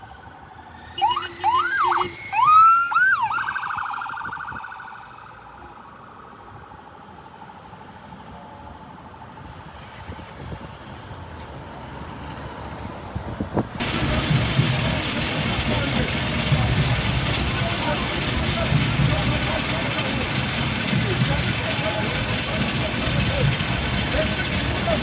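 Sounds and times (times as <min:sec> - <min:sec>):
police siren whooping: 0:00.7 - 0:06.6.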